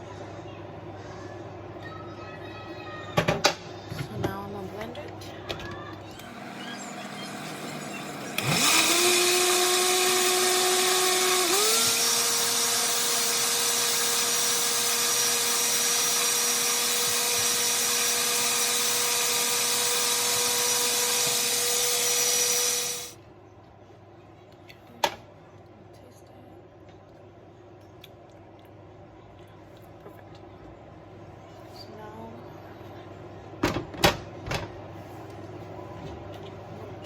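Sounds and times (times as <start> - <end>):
blender motor running: 6.2 - 23.2.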